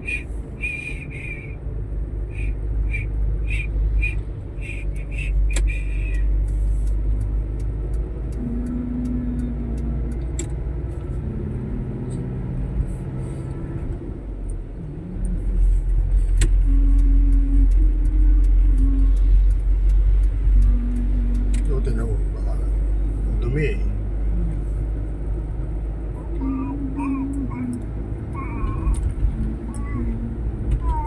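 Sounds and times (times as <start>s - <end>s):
vehicle engine rumbling: 0.0s - 31.0s
short humming tones: 8.2s - 14.0s, 14.8s - 21.9s.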